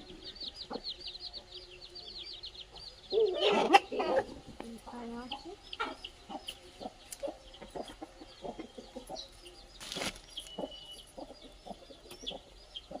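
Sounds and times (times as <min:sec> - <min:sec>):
chickens clucking: 0:00.0 - 0:13.0
rustling noise: 0:09.8 - 0:10.6.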